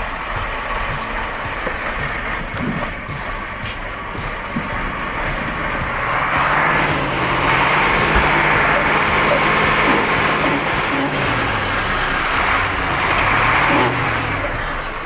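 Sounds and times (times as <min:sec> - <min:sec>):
heavy vehicle engine running: 0:00.0 - 0:15.0.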